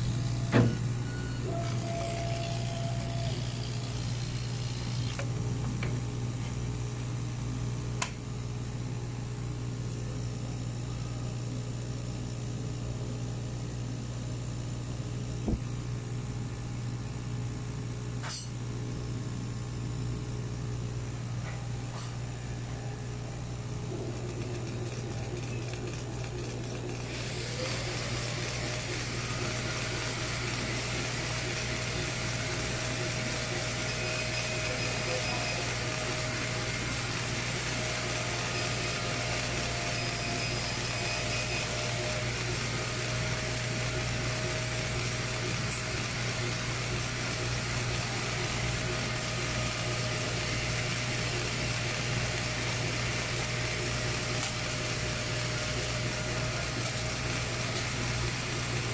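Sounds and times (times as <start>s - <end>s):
thin whining tones: 0.0s - 5.3s, 27.1s - 42.4s
machine low hum: 0.0s - 58.9s.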